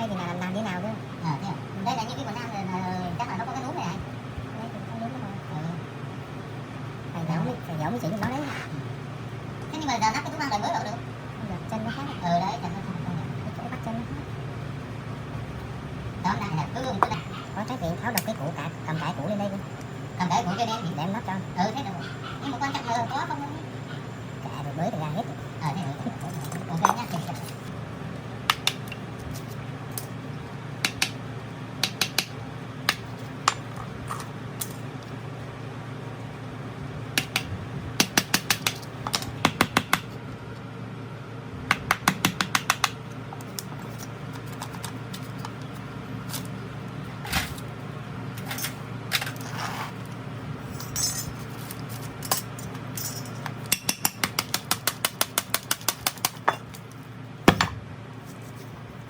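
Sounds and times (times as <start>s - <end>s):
steady low hum: 0.0s - 59.0s
metal tools clicking and tapping: 50.8s - 56.9s.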